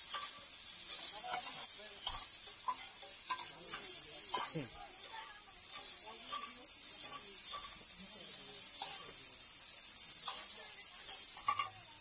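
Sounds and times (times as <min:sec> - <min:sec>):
oil sizzling on a griddle: 0:00.0 - 0:12.0.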